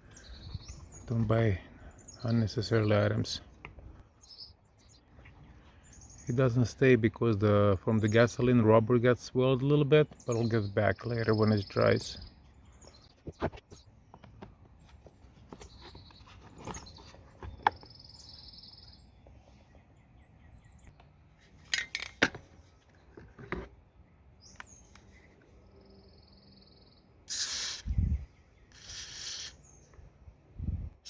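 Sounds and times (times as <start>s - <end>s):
birds chirping: 0.0s - 31.0s
small parts clicking and knocking: 21.7s - 22.4s.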